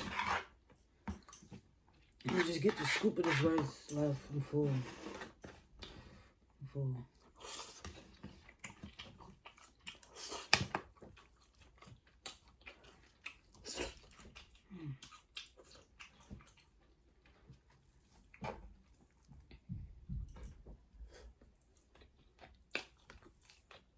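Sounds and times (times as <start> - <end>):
person chewing food: 7.1 - 23.9.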